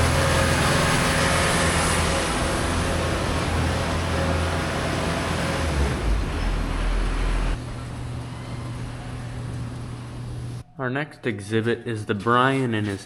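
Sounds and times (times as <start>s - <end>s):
heavy farm machinery engine: 0.0s - 8.3s.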